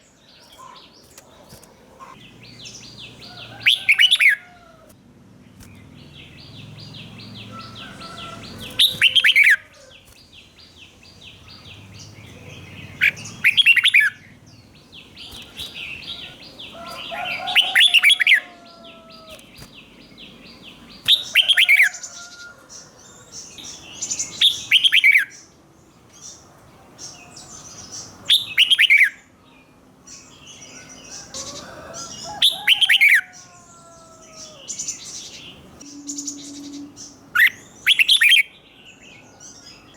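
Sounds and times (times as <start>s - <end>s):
bird song phrases falling in pitch: 30.4s - 39.9s.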